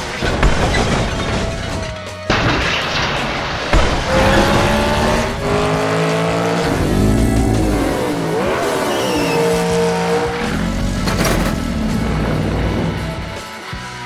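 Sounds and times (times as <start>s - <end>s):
background music: 0.0s - 14.0s
racing engine revving: 3.7s - 14.0s
tyre squeal: 4.1s - 13.5s.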